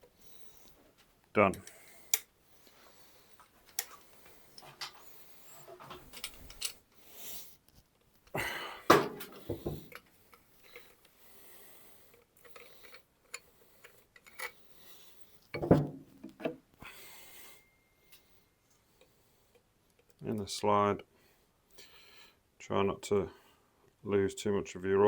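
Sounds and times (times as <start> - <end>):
metal tools clinking: 5.6 - 6.8.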